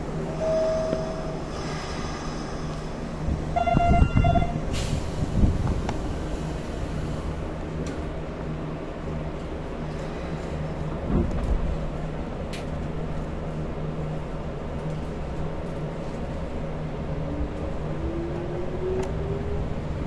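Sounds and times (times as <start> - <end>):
train running rumble: 0.0 - 20.0.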